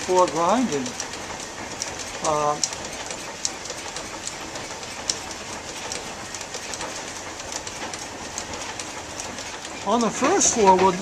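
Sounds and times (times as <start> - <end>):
mill machinery rattling: 0.0 - 11.0.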